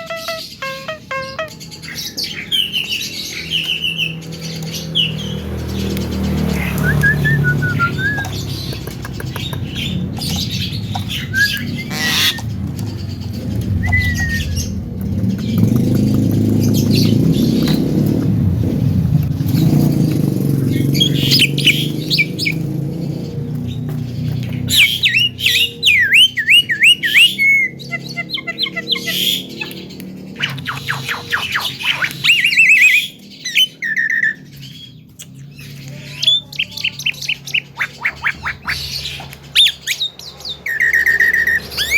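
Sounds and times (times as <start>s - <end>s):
myna bird calling: 0.0s - 18.2s, 19.6s - 41.9s
low rumble: 9.5s - 21.3s.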